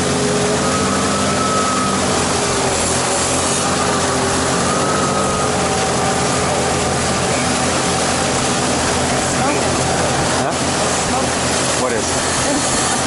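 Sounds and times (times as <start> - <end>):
constant rushing noise: 0.0 - 13.0
outboard motor running: 0.0 - 13.0.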